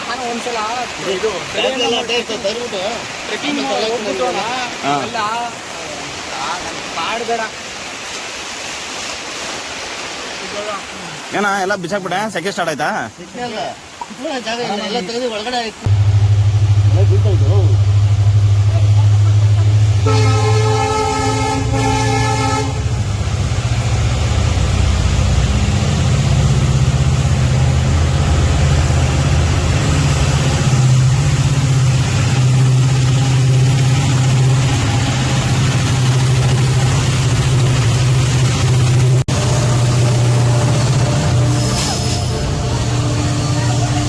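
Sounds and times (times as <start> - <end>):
locomotive engine rumbling: 15.8 - 44.0
train horn: 19.7 - 23.2, 39.3 - 44.0.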